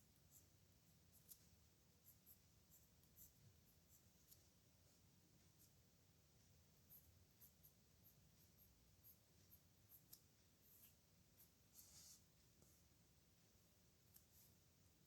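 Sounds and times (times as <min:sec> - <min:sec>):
pen scratching on paper: 0:01.1 - 0:04.4, 0:06.9 - 0:12.3, 0:14.1 - 0:14.6.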